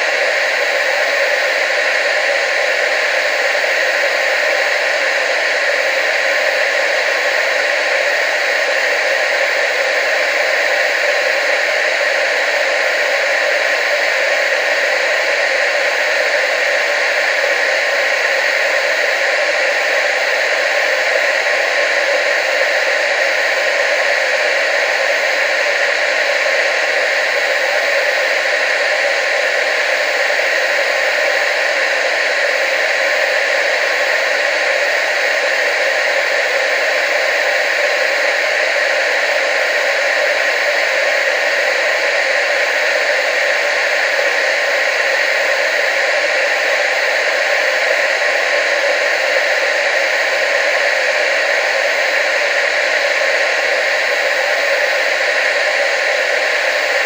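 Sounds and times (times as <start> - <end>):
television static hiss: 0.0 - 57.0.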